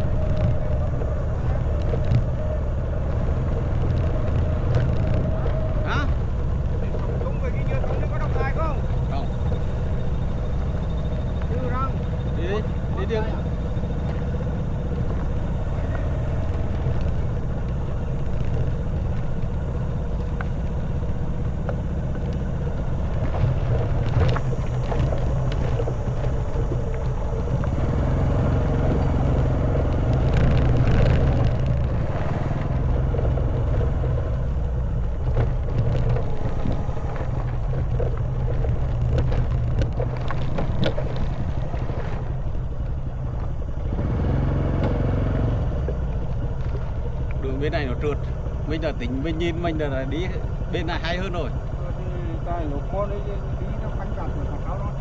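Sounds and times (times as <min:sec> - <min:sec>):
wind noise: 0:00.0 - 0:51.6
motorcycle engine running: 0:00.0 - 0:55.0
tyres clattering over gravel: 0:29.8 - 0:43.6.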